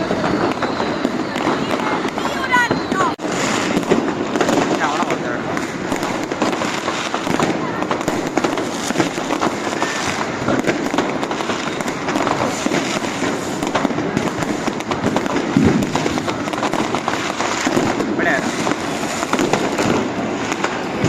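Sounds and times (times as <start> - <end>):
fireworks crackling and banging: 0.0 - 21.0.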